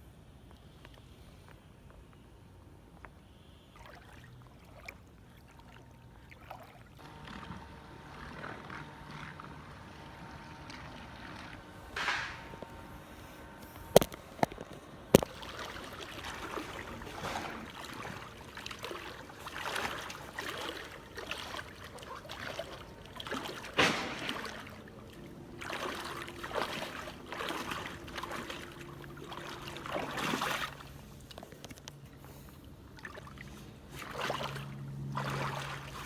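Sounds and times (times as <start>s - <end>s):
floodwater sloshing with wading: 3.0s - 36.0s
heavy splash: 15.2s - 31.1s, 33.0s - 36.0s.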